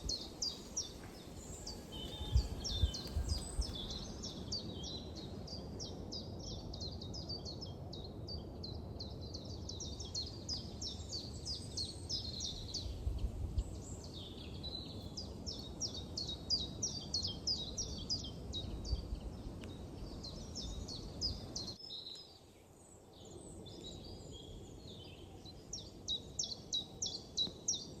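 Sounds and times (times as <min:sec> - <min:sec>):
birds chirping: 0:00.0 - 0:05.6.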